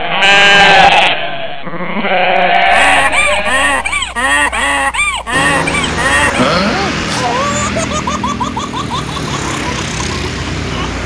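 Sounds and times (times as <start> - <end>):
cartoon goat bleating: 0.2 - 7.9
street traffic noise: 5.3 - 11.0.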